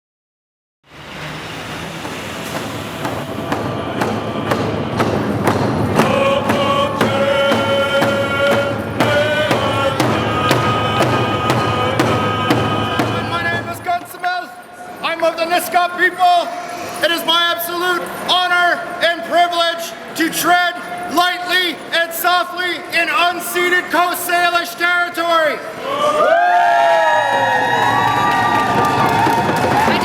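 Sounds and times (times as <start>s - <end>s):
drums beaten in steady beat: 2.0s - 13.9s, 28.6s - 30.0s
group of voices singing: 2.5s - 14.0s.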